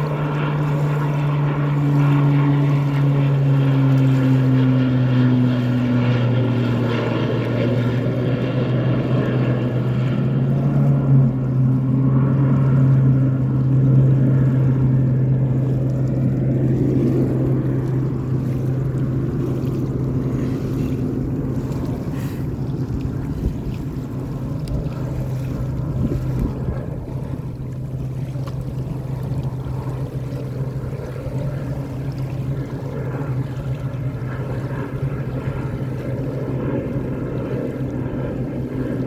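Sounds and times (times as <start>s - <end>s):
propeller plane drone: 0.0s - 39.0s
wind noise: 10.9s - 31.7s.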